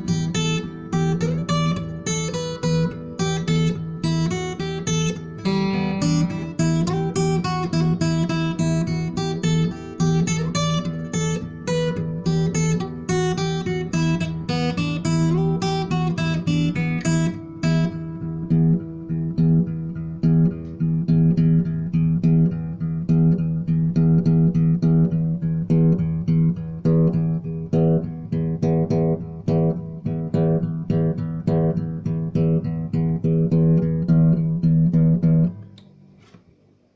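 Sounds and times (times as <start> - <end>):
plucked guitar notes: 0.0 - 35.8.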